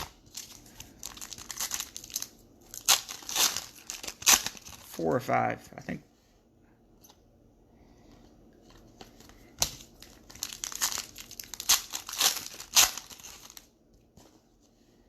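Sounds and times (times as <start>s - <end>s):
foil wrapper crinkling and tearing: 0.0s - 5.0s, 9.2s - 13.7s.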